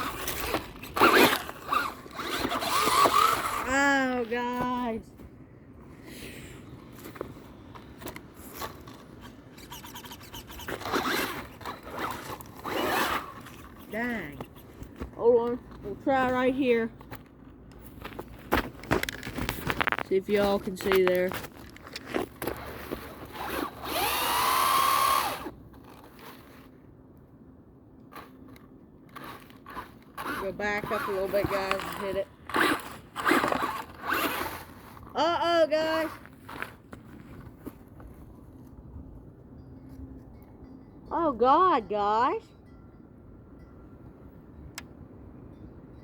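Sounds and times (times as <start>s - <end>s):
rc car motor bursts: 0.0s - 3.7s, 23.3s - 25.5s
tires scraping over dirt: 0.0s - 5.0s, 6.7s - 17.0s, 17.8s - 26.8s, 28.1s - 38.2s.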